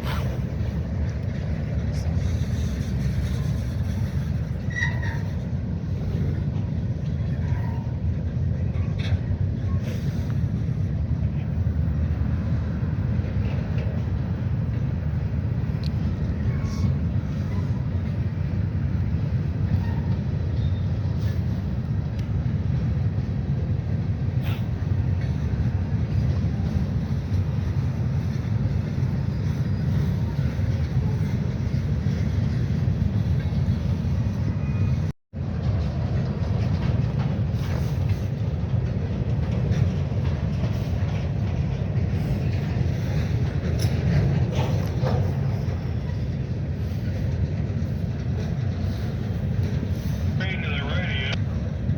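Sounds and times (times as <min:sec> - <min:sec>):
freight train rolling past: 0:00.0 - 0:51.9.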